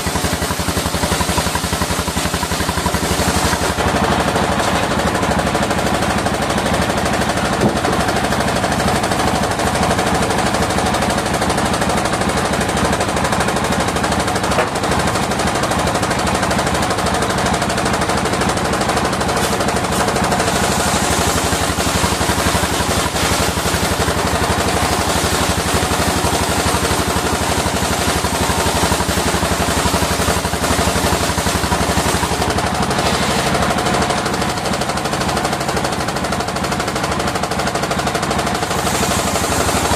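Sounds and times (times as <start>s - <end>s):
circular saw cutting wood: 0.0s - 11.9s, 19.3s - 34.7s, 38.4s - 39.9s
engine running: 0.0s - 39.9s.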